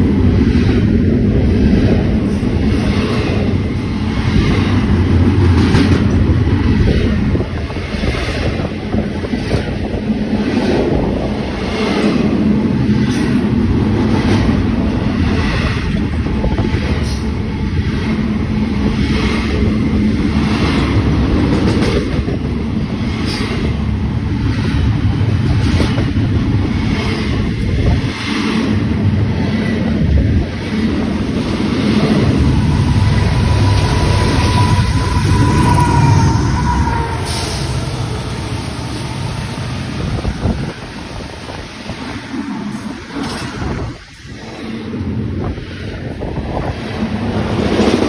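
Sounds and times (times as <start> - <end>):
train wheels rumbling on rail: 0.0 - 48.0
wind on microphone: 0.0 - 48.0.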